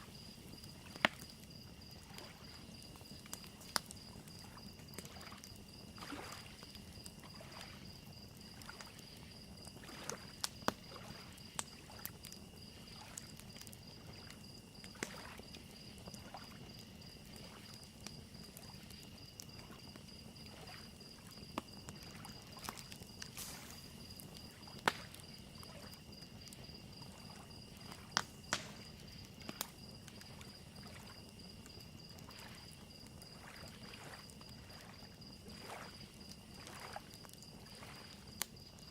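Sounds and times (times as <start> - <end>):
crickets chirping: 0.0 - 38.9
wood fire crackling: 0.0 - 38.9
waves lapping at shore: 6.0 - 6.6, 33.3 - 37.0, 37.7 - 38.2.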